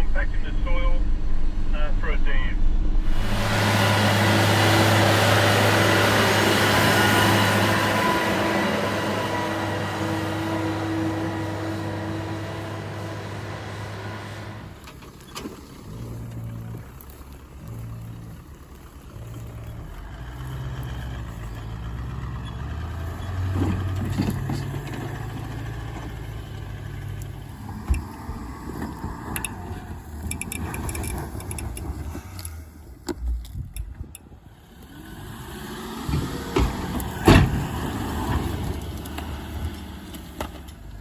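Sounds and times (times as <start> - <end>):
vehicle engine running: 0.0 - 41.0
knocks and rattles: 21.8 - 32.1
loud thump: 36.1 - 37.7.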